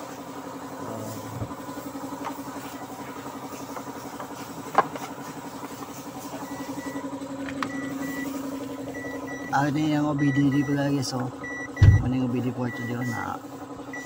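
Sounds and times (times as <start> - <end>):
car engine idling: 0.0 - 14.0
short high beeps: 7.7 - 8.4, 11.4 - 12.1.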